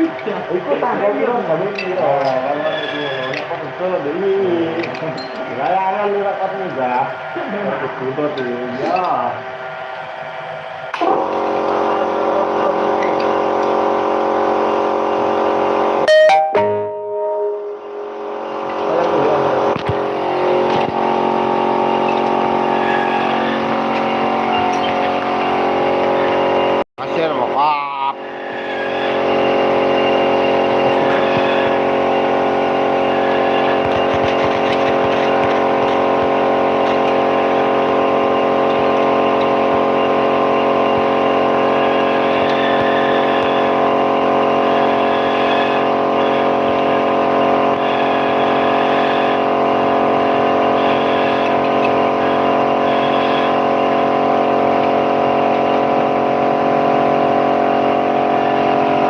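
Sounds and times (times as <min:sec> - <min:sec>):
scooter engine running steadily: 0:30.2 - 0:44.8.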